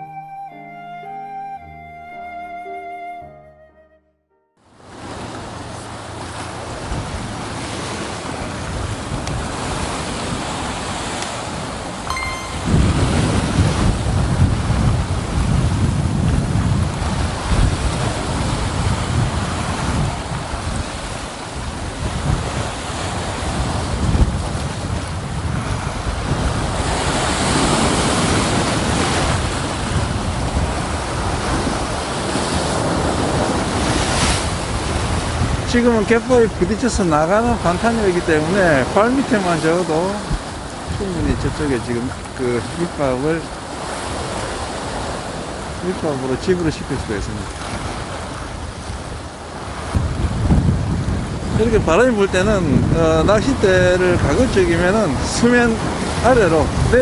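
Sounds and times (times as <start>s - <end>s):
brief high tone: 0.0s - 4.5s, 12.1s - 13.7s
waves breaking on rocks: 4.8s - 12.0s, 13.0s - 57.0s
wind buffeting microphone: 5.0s - 12.0s, 12.7s - 57.0s.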